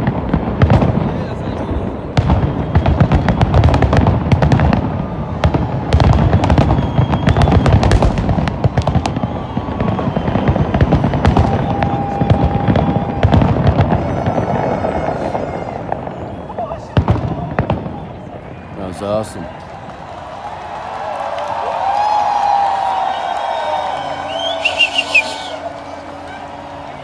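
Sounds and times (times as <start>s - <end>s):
fireworks booming: 0.0s - 20.8s
fireworks crackling: 0.0s - 27.0s.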